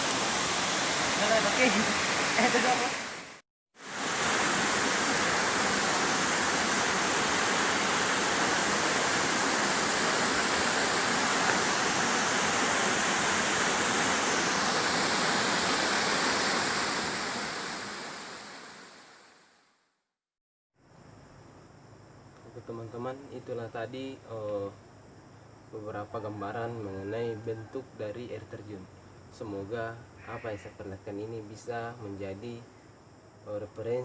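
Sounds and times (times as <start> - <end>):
waterfall pouring: 0.0 - 17.3.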